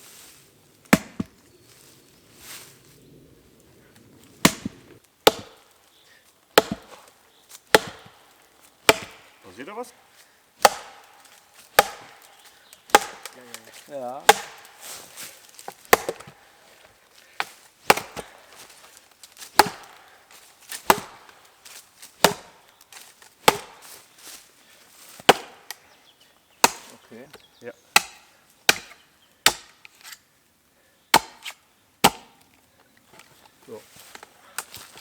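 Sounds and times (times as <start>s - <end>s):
blows striking wood: 4.4s - 5.7s, 6.5s - 9.5s, 10.6s - 16.5s, 17.4s - 22.8s, 23.4s - 23.9s, 25.2s - 25.8s.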